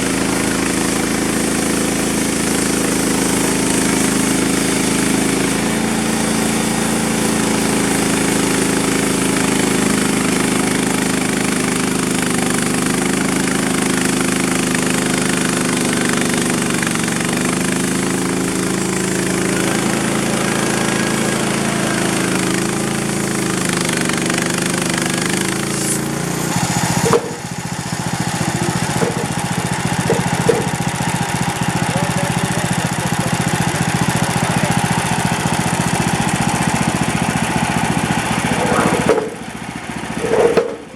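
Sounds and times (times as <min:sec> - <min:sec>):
band blade sawing log: 0:00.0 - 0:40.9
sawmill engine running: 0:00.0 - 0:40.9
sharp knocks: 0:27.0 - 0:27.6, 0:28.9 - 0:29.4, 0:30.0 - 0:30.8, 0:38.6 - 0:39.5, 0:40.2 - 0:40.9.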